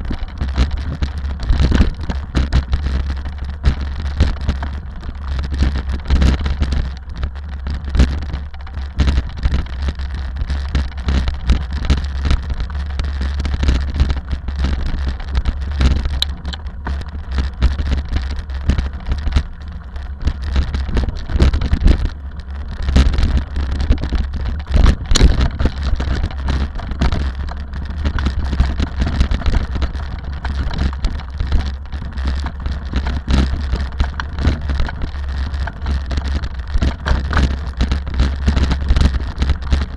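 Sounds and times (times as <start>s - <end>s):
rally car engine drone: 0.0s - 39.9s
sharp knocks and rattles: 23.0s - 39.8s.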